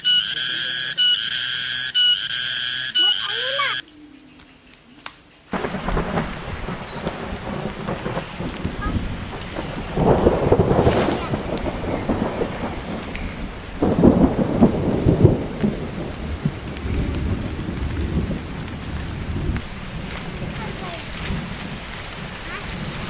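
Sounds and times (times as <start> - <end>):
heavy rain falling: 5.5 - 23.0
thunder rolling: 5.5 - 23.0.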